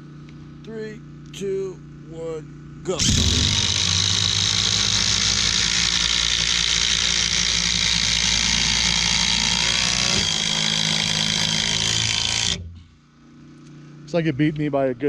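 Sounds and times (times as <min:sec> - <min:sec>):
impact drivers hammering: 0:03.0 - 0:12.8.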